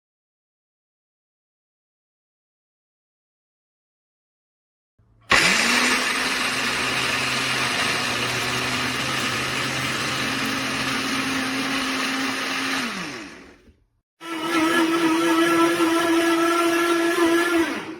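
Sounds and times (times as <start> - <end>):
blender motor running: 5.3 - 17.9.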